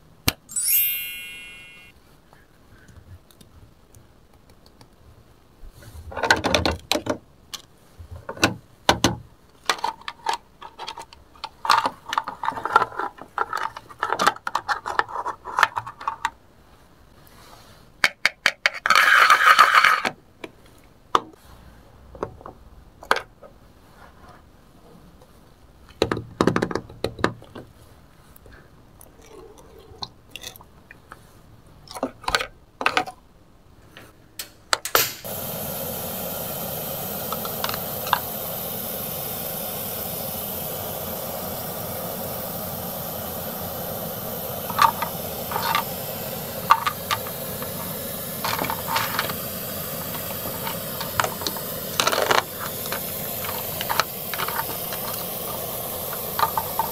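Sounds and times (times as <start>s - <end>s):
toy stove hissing: 0.5s - 1.9s, 34.8s - 56.9s
plastic toy clicks and knocks: 18.0s - 20.2s.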